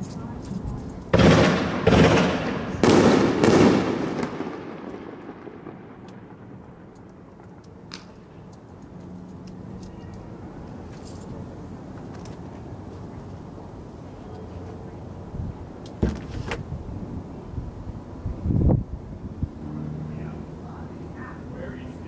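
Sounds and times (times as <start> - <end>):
fireworks bangs echoing: 1.1 - 8.3.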